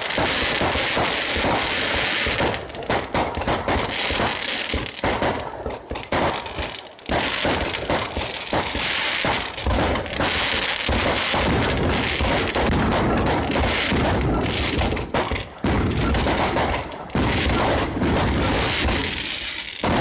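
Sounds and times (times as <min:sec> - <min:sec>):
fireworks crackling and banging: 0:00.0 - 0:20.0.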